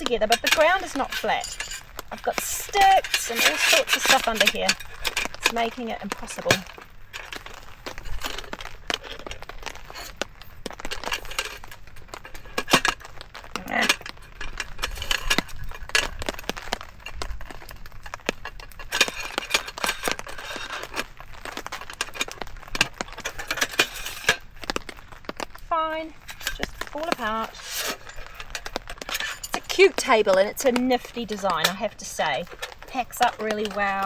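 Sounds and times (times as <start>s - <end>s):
camp table parts clinking and knocking: 0.0s - 34.0s.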